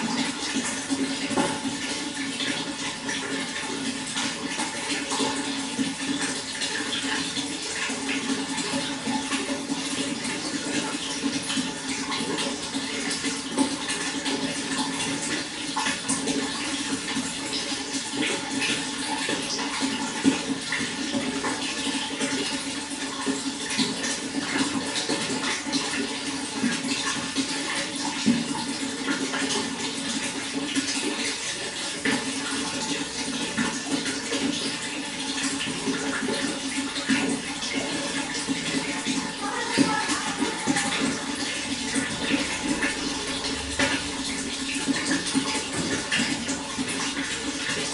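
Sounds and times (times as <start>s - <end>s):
running water splashing: 0.0s - 47.9s.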